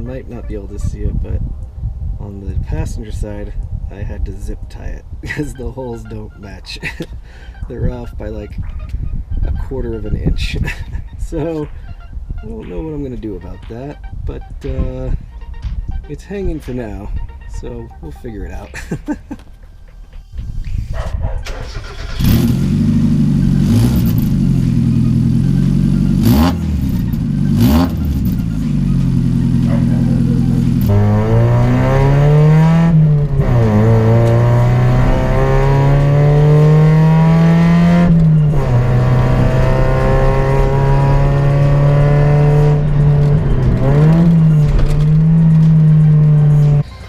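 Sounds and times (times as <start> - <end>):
car engine revving: 17.2 - 47.0.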